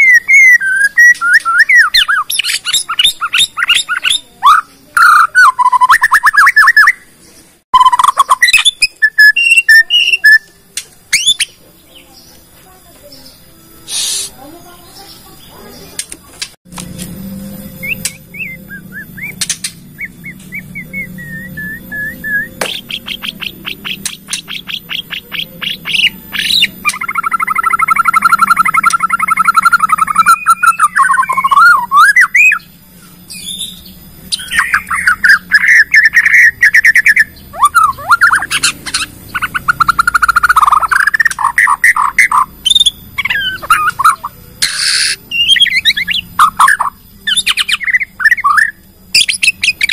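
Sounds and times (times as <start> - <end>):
shama bird song: 0.0 - 49.9.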